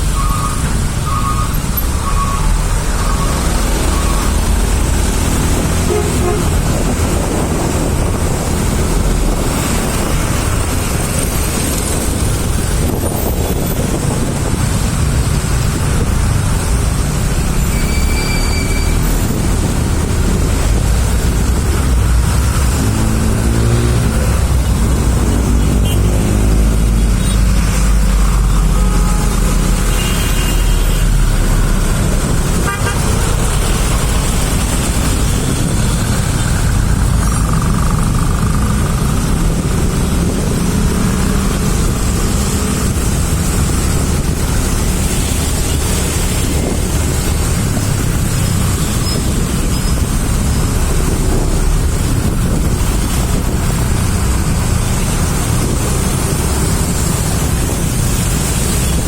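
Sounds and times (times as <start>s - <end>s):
engine revving: 2.6s - 17.6s, 18.9s - 30.0s
car horn toots: 5.8s - 6.6s, 32.6s - 33.2s
idling vehicle engines rumble: 19.2s - 59.0s.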